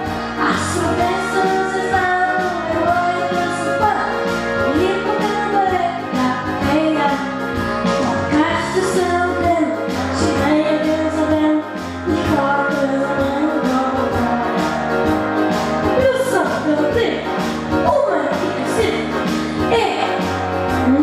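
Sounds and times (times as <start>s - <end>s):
instrumental accompaniment: 0.0s - 21.0s
person singing pop song: 0.0s - 21.0s.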